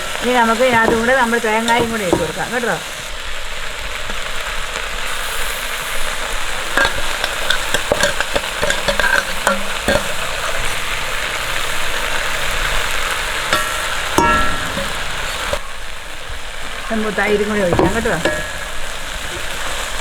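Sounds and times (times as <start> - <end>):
spoon knocking and scraping pan: 0.0 - 3.1, 6.7 - 10.4, 13.4 - 15.7, 17.1 - 20.0
vegetables sizzling in a pan: 0.0 - 20.0.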